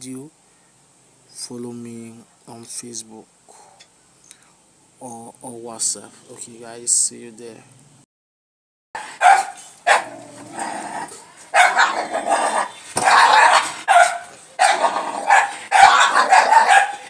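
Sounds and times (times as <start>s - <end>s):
dog barking: 9.0s - 17.0s.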